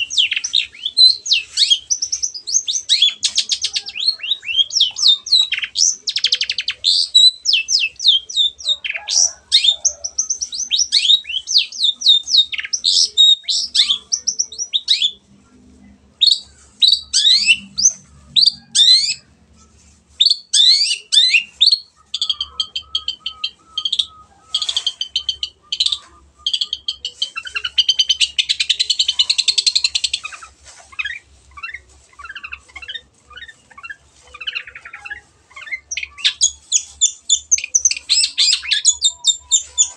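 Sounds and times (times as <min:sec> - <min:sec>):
bird singing chirps and trills: 0:20.4 - 0:30.3, 0:31.0 - 0:39.9.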